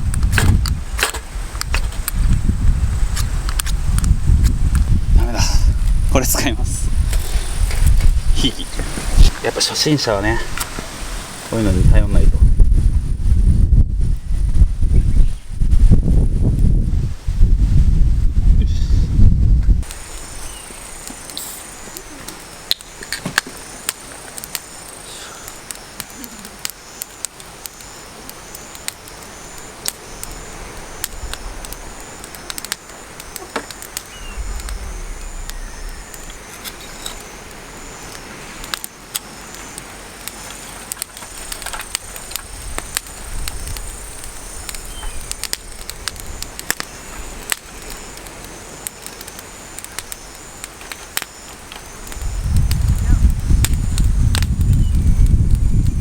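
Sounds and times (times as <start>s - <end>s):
campfire crackling and popping: 0.0s - 17.6s, 18.5s - 56.0s.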